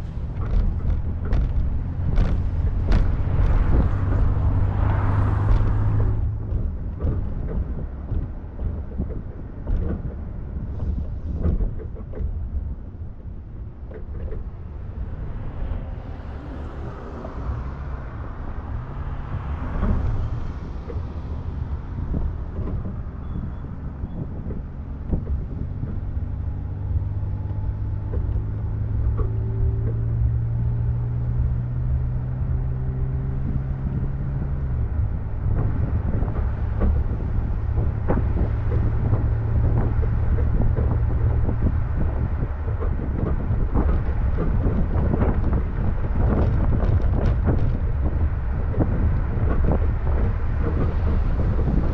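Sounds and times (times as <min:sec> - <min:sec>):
vehicle rushing past: 0:00.0 - 0:06.4, 0:14.5 - 0:23.8
engine hum: 0:00.0 - 0:51.9
road rumble: 0:00.0 - 0:51.9
wind: 0:00.0 - 0:51.9.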